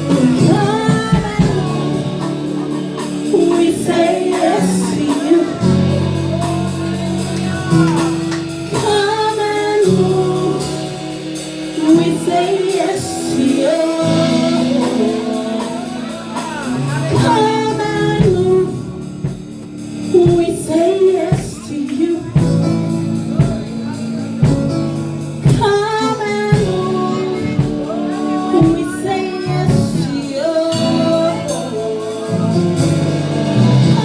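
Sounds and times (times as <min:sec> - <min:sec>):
voices singing worship music: 0:00.0 - 0:34.0
band playing low sustained notes: 0:26.5 - 0:34.0.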